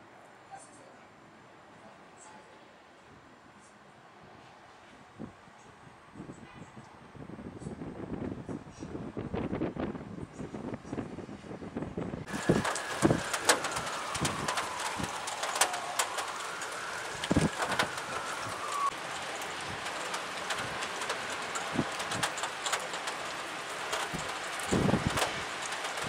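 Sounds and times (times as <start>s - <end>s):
rain falling: 12.2s - 26.0s
raindrops knocking on a surface: 12.3s - 26.0s.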